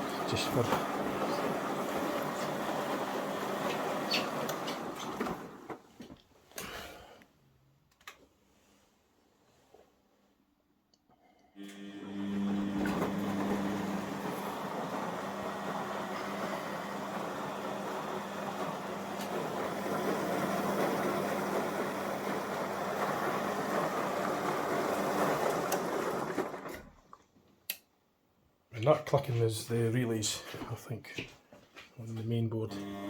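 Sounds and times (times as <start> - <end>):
washing machine running: 0.0 - 6.0, 11.6 - 27.1, 32.7 - 33.0.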